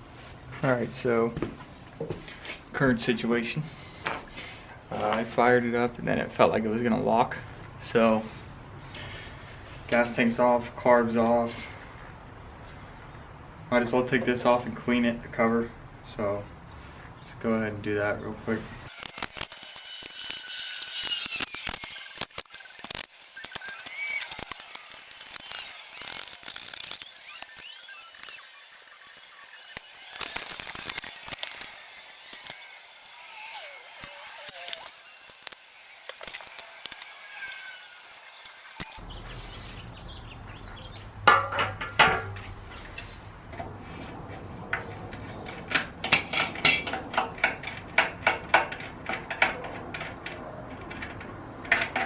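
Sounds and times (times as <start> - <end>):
metal parts clinking and rattling: 18.9 - 32.8
ratchet clicking: 18.9 - 39.0.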